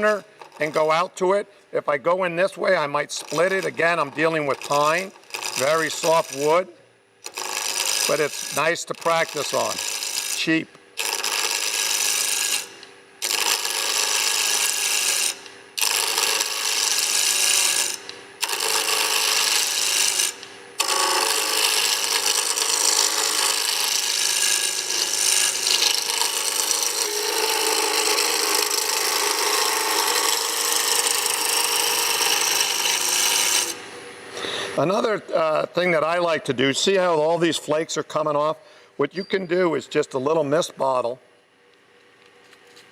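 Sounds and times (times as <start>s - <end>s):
lathe chisel rasping wood: 0.0s - 1.0s, 3.1s - 6.6s, 7.2s - 33.8s.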